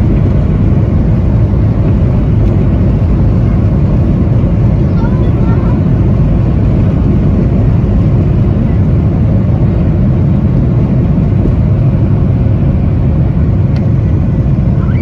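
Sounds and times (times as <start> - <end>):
jet engine rumble in cabin: 0.0 - 15.0.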